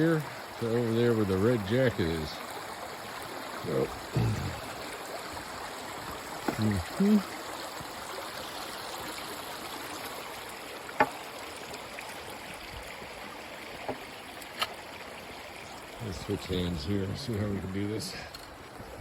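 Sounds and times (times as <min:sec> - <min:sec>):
short vocal sound: 0:03.8 - 0:04.8.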